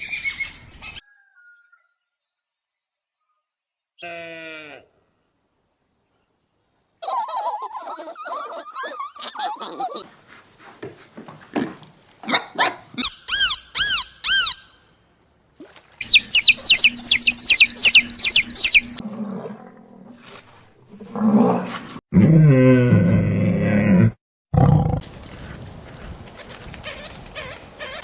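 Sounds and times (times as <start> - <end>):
high arching animal calls: 13.0 - 14.9, 16.0 - 19.1
high shrill animal calls: 13.0 - 15.0, 16.0 - 19.0
animal calls and clicks: 15.6 - 19.0, 25.2 - 28.0.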